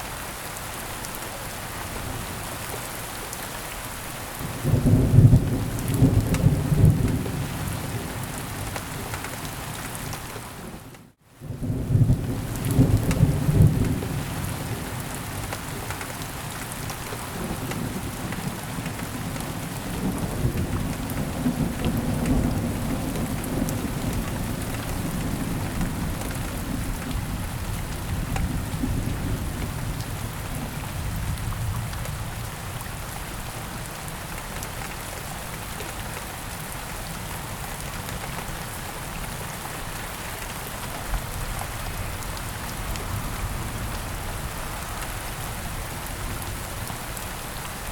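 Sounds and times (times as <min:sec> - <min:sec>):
rain falling: 0:00.0 - 0:47.9.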